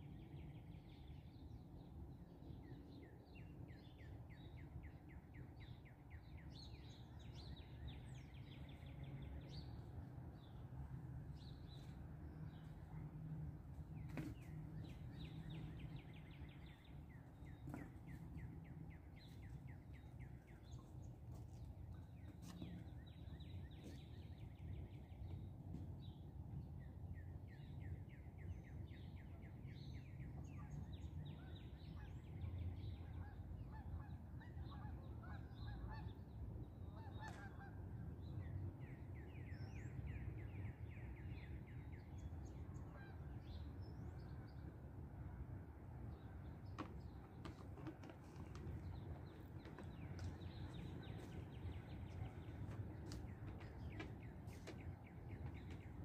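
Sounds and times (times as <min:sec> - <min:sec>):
low steady background rumble: 0:00.0 - 0:56.0
wild birds calling and singing: 0:46.6 - 0:56.0.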